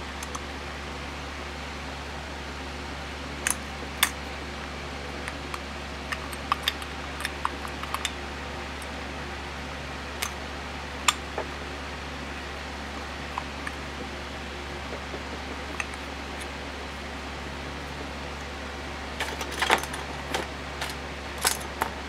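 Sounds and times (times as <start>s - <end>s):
steady low hum: 0.0s - 22.0s
small metal parts clicking: 5.2s - 8.2s, 19.2s - 21.9s.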